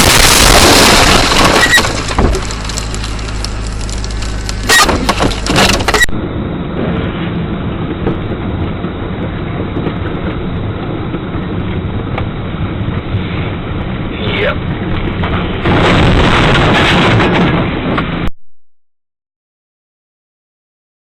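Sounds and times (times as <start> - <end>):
car collision crunching impacts: 0.0 - 6.1
car driving noise: 0.0 - 18.3.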